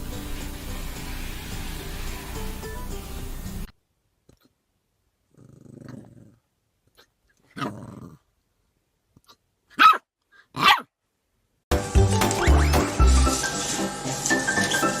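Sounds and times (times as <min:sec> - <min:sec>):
dog growling: 0:05.3 - 0:08.3
dog barking: 0:09.7 - 0:10.9.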